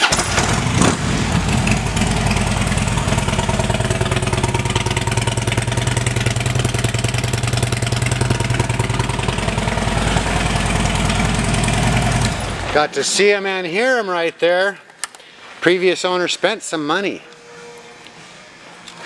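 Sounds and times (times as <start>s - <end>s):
motorcycle engine idling: 0.1s - 12.8s.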